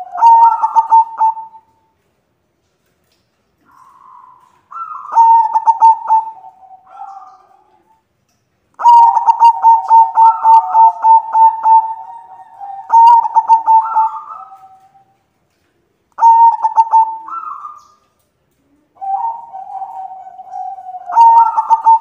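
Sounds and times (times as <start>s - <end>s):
dove cooing staccato: 0.0s - 1.7s, 3.7s - 7.9s, 8.8s - 15.1s, 16.2s - 17.9s, 18.8s - 22.0s.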